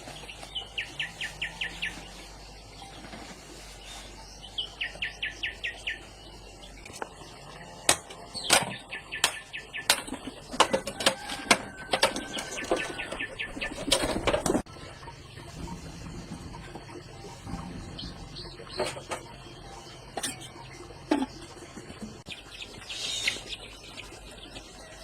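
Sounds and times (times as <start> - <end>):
sharp knocks and clatter: 7.9 - 14.7
bird chirping: 22.3 - 24.7.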